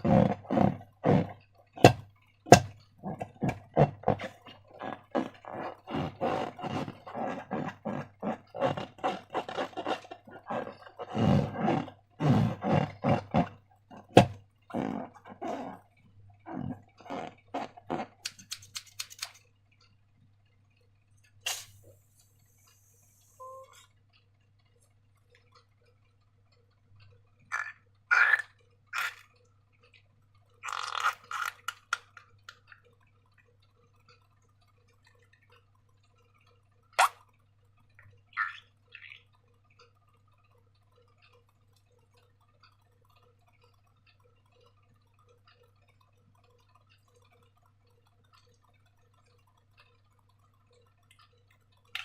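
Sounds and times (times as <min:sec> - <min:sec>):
slime squelching by hand: 0:00.0 - 0:19.2.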